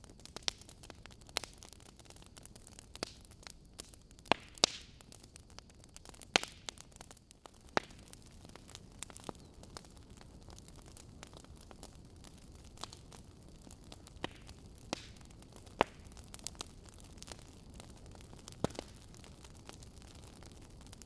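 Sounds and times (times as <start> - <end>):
logs crackling in fireplace: 0.0 - 21.0
soft steady hiss: 0.0 - 21.0.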